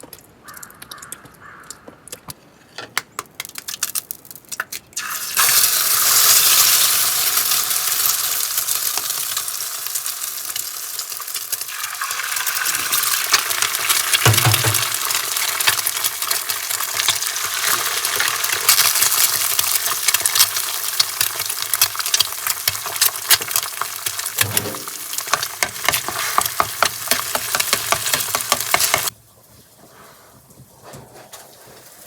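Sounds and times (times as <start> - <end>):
food sizzling in a pan: 5.0 - 29.1
dull knock: 14.3 - 14.9.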